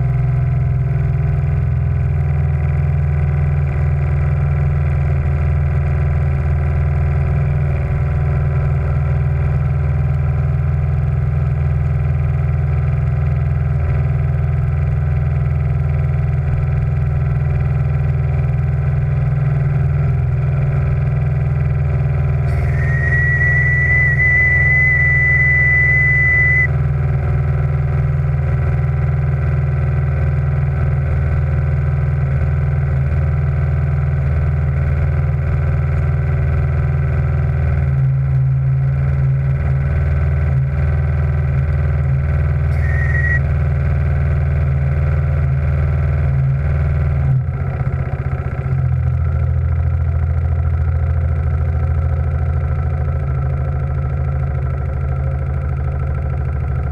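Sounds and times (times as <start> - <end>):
steam engine hum: 22.4 - 26.7, 42.7 - 43.4
thin high whistling tone: 22.5 - 26.7, 42.7 - 43.4.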